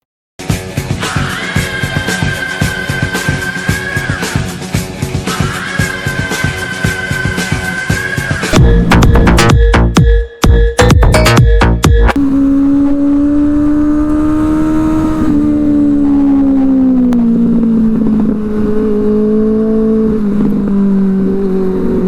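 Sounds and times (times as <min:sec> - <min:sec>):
motorcycle engine revving: 0:12.2 - 0:22.0.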